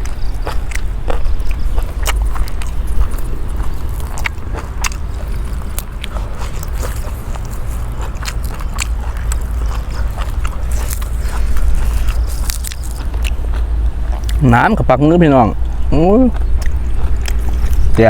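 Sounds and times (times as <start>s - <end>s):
person chewing food: 0.0s - 14.5s, 15.2s - 18.0s
sharp crunches: 0.0s - 15.4s
low rumble: 0.0s - 18.0s.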